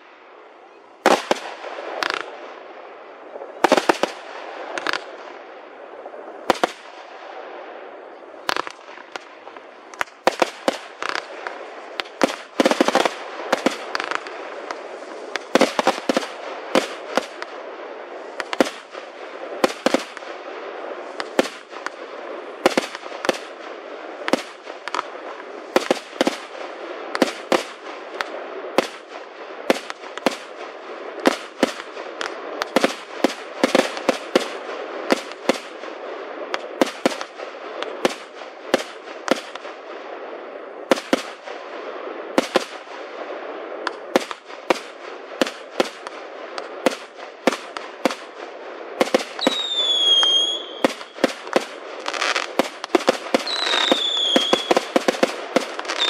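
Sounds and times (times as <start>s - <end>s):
steady hiss: 0.0s - 56.0s
firework shells bursting: 49.0s - 56.0s.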